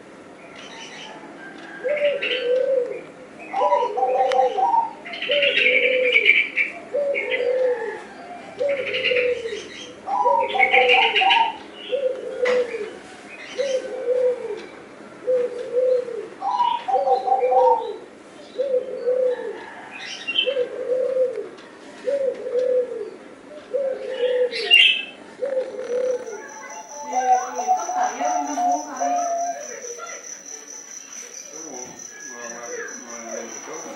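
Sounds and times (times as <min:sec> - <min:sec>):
dove cooing: 0:01.0 - 0:30.5
bird chirping: 0:24.1 - 0:33.9.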